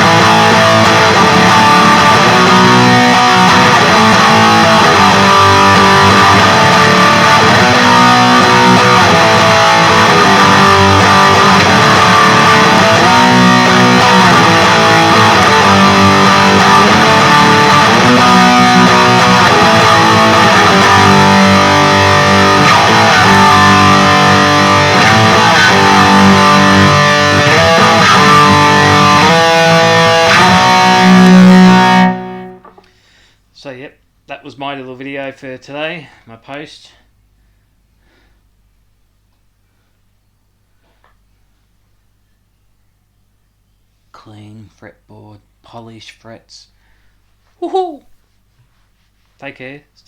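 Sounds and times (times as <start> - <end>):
high-gain electric guitar riffs: 0.0 - 33.0.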